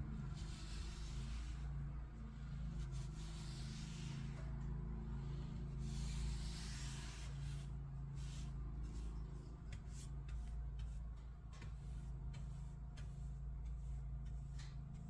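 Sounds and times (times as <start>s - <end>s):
steady low hum: 0.0s - 15.0s
hand tool scraping paint: 5.3s - 15.0s.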